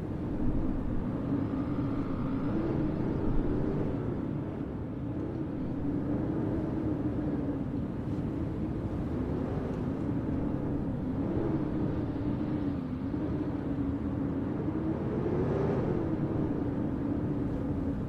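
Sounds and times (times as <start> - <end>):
howling wind: 0.0 - 18.0.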